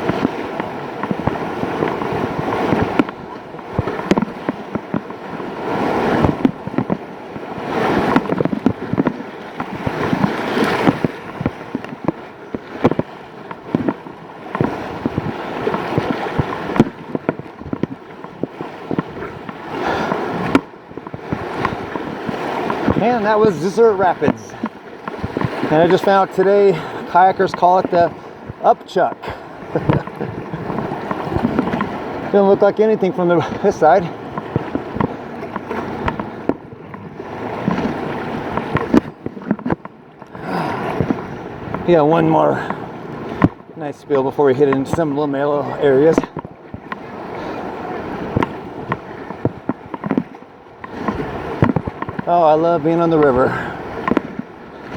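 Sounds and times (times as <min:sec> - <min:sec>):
kayak knocks: 0:00.0 - 0:54.9
water splashing against boat: 0:00.0 - 0:54.9
whitewater rapids rushing: 0:00.0 - 0:54.9.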